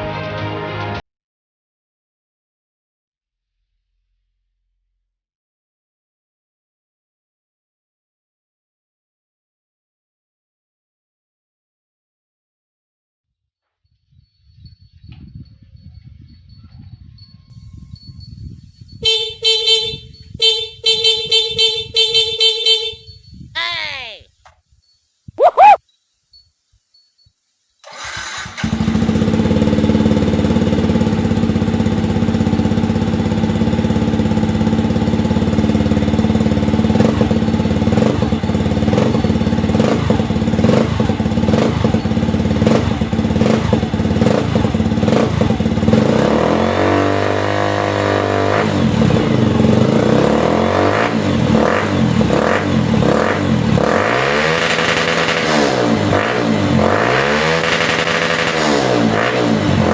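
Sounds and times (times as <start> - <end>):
motorcycle engine revving: 27.9 - 59.9.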